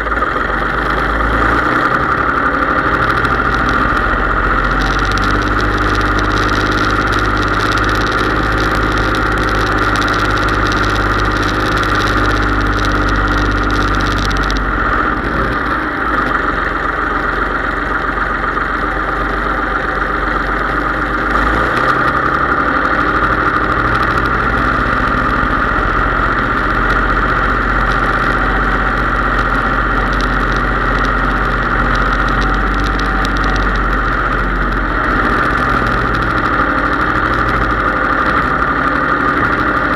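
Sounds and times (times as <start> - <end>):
high whine: 0.0 - 39.9
tractor diesel engine running: 0.0 - 39.9.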